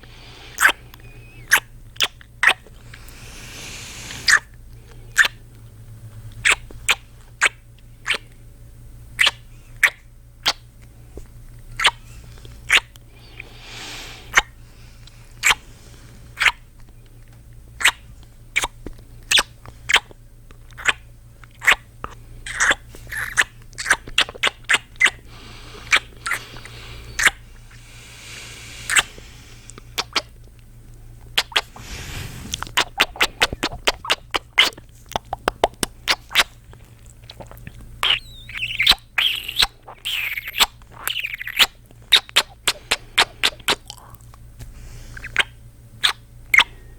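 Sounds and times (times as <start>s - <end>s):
breaths: 0.0s - 1.5s, 2.8s - 5.2s, 13.0s - 16.4s, 25.2s - 30.0s, 31.6s - 32.8s, 42.6s - 45.4s
squeaky sliding kisses: 0.5s - 2.6s, 4.1s - 4.5s, 6.4s - 8.3s, 9.2s - 10.6s, 11.7s - 13.5s, 14.3s - 14.6s, 15.4s - 15.6s, 16.4s - 16.6s, 17.8s - 20.1s, 20.7s - 21.0s, 21.6s - 21.8s, 22.5s - 25.2s, 25.8s - 27.4s, 28.9s - 29.1s, 30.0s - 30.3s, 31.4s - 36.5s, 38.0s - 43.8s, 45.2s - 46.7s
lip smacking kisses: 0.5s - 2.7s, 6.4s - 8.3s, 9.2s - 10.6s, 11.8s - 13.5s, 14.3s - 15.6s, 16.4s - 25.2s, 25.8s - 27.4s, 28.8s - 30.6s, 31.2s - 31.8s, 32.5s - 44.4s, 45.2s - 46.7s.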